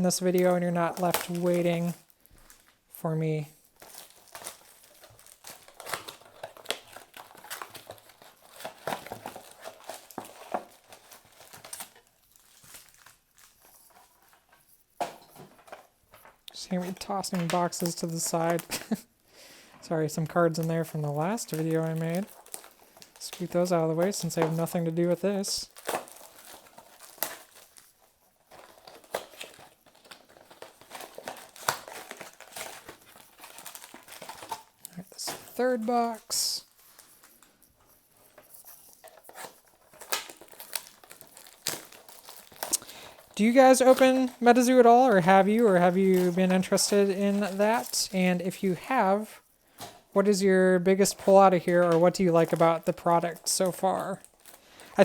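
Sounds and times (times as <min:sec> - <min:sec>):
wrapper crackling: 0:00.0 - 0:19.2, 0:19.8 - 0:55.0
packs crinkling and rustling: 0:00.0 - 0:55.0
cardboard tearing: 0:03.8 - 0:16.2, 0:20.4 - 0:50.2.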